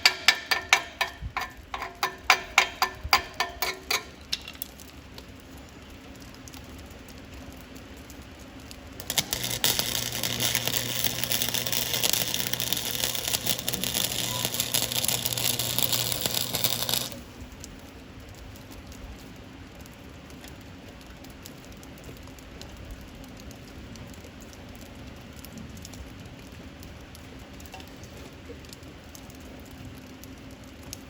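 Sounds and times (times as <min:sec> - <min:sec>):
arc welding crackle: 0:00.0 - 0:31.0
steady hum: 0:08.6 - 0:18.4.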